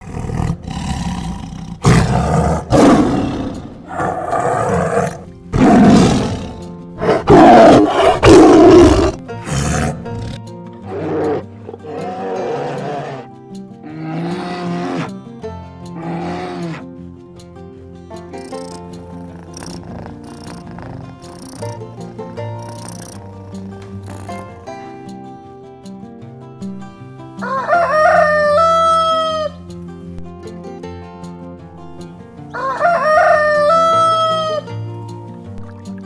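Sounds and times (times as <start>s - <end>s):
big cat roaring: 0.0s - 15.2s, 15.9s - 16.9s
background music: 0.0s - 36.0s.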